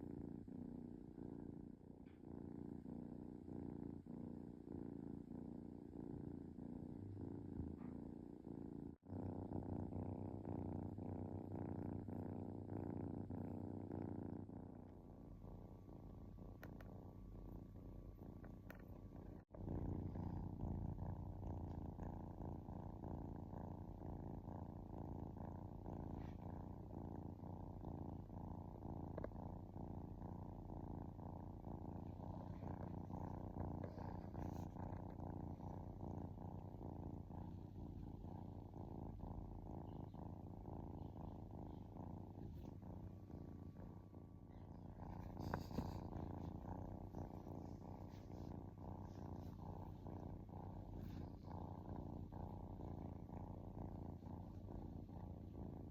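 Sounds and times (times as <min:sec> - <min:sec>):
kitten purring: 0:00.0 - 0:55.9.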